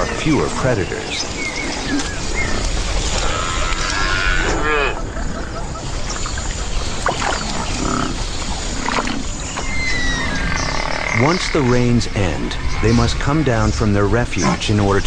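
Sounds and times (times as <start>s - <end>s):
buffalo calls: 9.8s - 11.8s.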